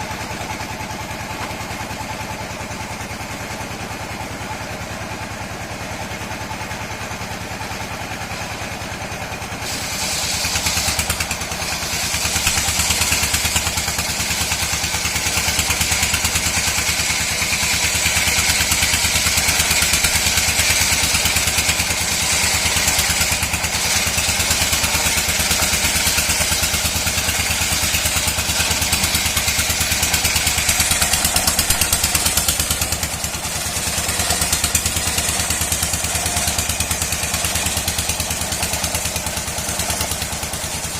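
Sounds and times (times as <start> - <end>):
saw engine running: 0.0 - 40.9
saw screeching through wood: 9.2 - 40.9.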